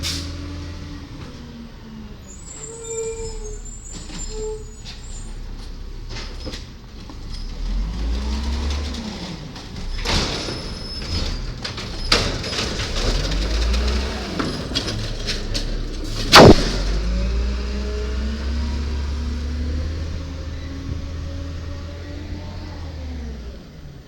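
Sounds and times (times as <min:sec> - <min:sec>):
garbage truck engine: 0:00.0 - 0:24.0
loud sharp bang: 0:16.3 - 0:17.2.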